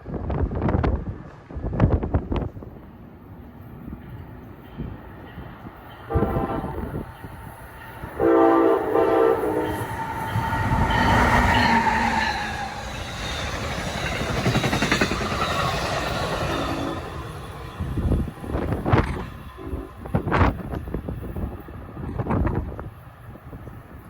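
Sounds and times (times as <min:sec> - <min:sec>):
train passing at speed: 0:00.0 - 0:24.0
train horn blasts: 0:06.1 - 0:07.1, 0:08.0 - 0:12.9, 0:19.4 - 0:20.4.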